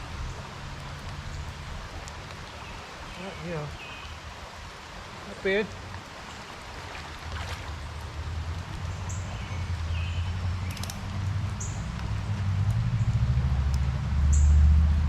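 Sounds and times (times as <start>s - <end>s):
rain: 0.0s - 15.0s
stream flowing: 0.0s - 15.0s
car approaching: 8.0s - 15.0s.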